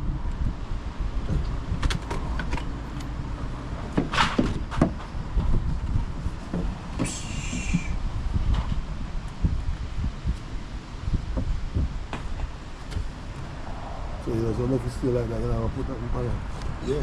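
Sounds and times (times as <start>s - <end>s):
timber and tools knocking: 1.8s - 2.7s.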